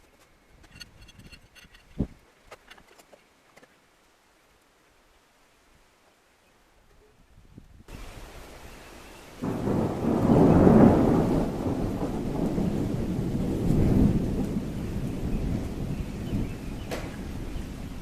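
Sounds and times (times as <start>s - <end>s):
heavy rain hissing: 3.8s - 18.0s
thunder rumbling: 9.3s - 18.0s.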